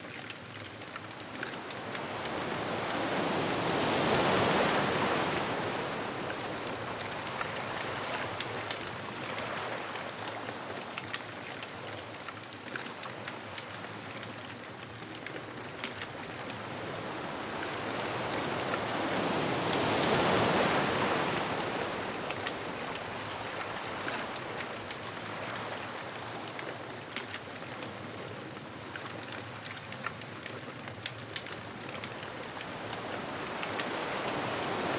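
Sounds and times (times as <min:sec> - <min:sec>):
ocean waves breaking: 0:01.2 - 0:12.2, 0:16.0 - 0:28.6, 0:31.4 - 0:34.9.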